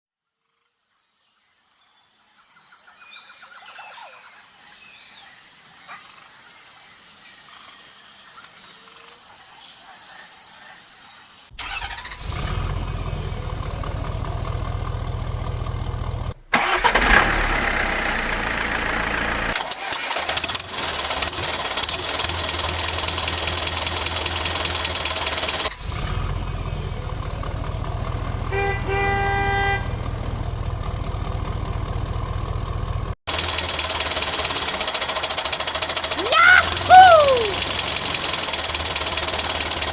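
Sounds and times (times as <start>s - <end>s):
vehicle engines running: 11.5s - 39.9s
horn toot: 28.5s - 30.0s.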